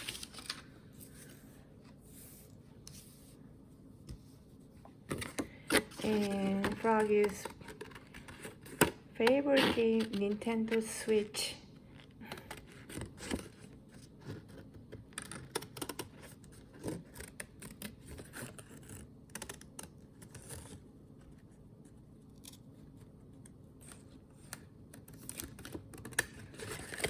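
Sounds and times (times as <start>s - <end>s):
paper rustling: 0.0s - 3.4s.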